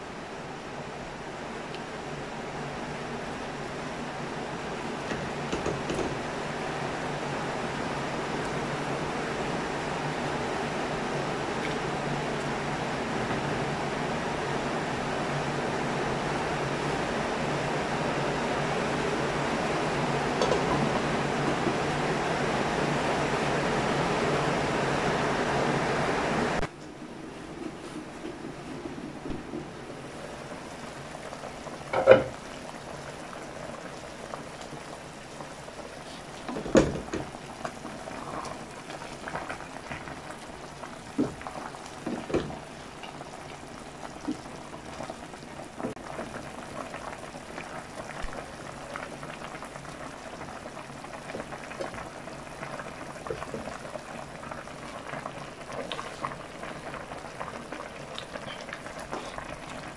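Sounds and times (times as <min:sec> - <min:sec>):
broth bubbling in a pot: 0:00.0 - 0:59.9
glass lid clanking: 0:32.0 - 0:32.3.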